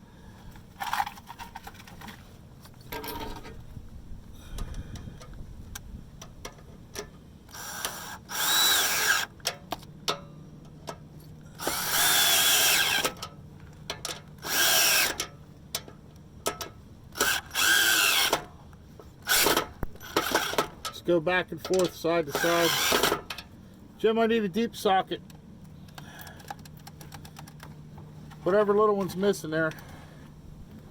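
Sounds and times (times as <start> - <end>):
cordless drill whining: 7.5 - 9.3, 11.6 - 13.2, 14.4 - 15.2, 17.2 - 18.5, 19.3 - 20.7, 22.3 - 23.2.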